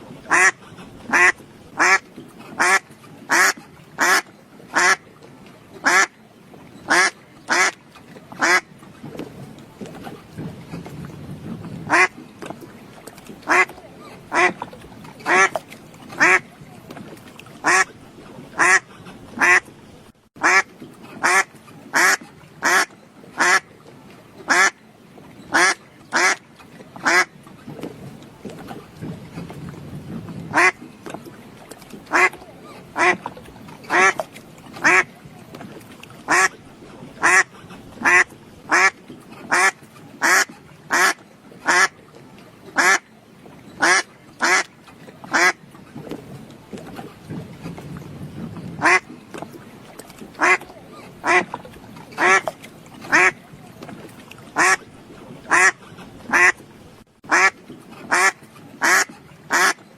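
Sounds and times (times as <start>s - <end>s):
duck quacking: 0.3s - 2.0s, 2.6s - 4.2s, 4.8s - 5.0s, 5.8s - 6.1s, 6.9s - 7.7s, 8.4s - 8.6s, 11.9s - 12.1s, 13.5s - 13.7s, 15.3s - 15.6s, 16.2s - 16.4s, 18.6s - 18.8s, 19.4s - 19.6s, 20.4s - 20.6s, 21.2s - 23.6s, 24.5s - 24.7s, 30.5s - 30.8s, 32.1s - 32.4s, 33.0s - 33.2s, 34.8s - 35.1s, 37.2s - 38.9s, 39.5s - 41.9s, 48.8s - 49.0s, 50.4s - 50.6s, 51.2s - 51.5s, 53.1s - 53.4s, 55.5s - 56.5s, 57.3s - 59.8s.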